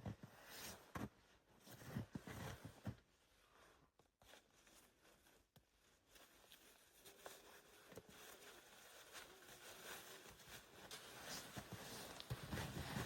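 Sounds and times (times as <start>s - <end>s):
soft clicks and rustles: 4.0s - 13.0s.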